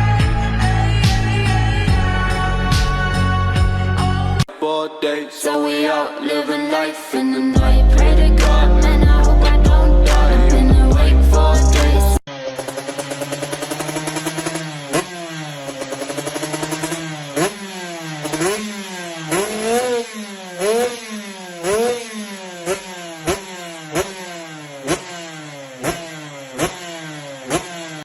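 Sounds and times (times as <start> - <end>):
exhaust cracks: 7.6 - 28.0
motorcycle engine revving: 7.6 - 28.0.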